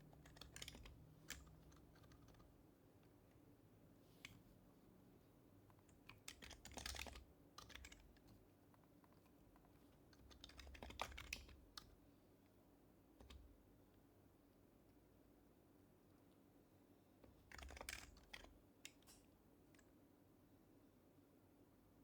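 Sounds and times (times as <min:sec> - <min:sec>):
soft keyboard typing: 0:00.0 - 0:03.4, 0:05.6 - 0:12.0, 0:13.2 - 0:13.6, 0:17.2 - 0:19.9.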